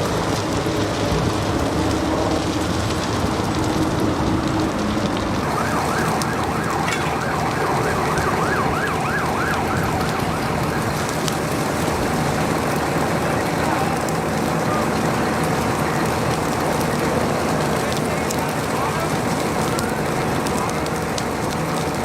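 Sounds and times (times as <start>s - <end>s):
emergency siren yelping: 0.0s - 22.0s
steady rushing noise: 0.0s - 22.0s.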